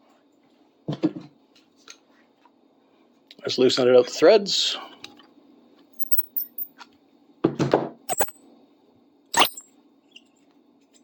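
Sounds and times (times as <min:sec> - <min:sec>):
metal clink ringing: 0:06.0 - 0:06.7.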